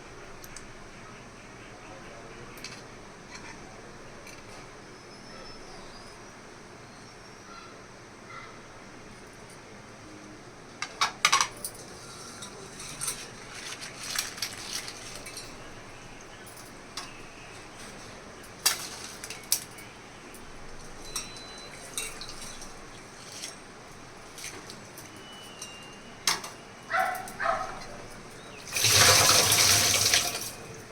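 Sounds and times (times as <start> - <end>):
kitchen utensils clinking: 10.8 - 30.9.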